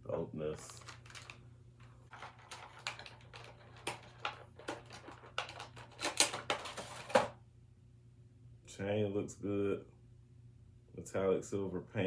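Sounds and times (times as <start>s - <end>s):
plastic packaging clicks and crinkles: 0.6s - 7.4s.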